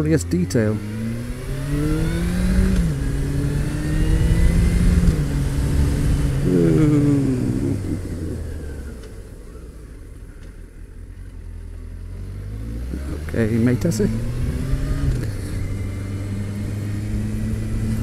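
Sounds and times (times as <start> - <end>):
motorcycle engine shifting gears: 0.0 - 18.0.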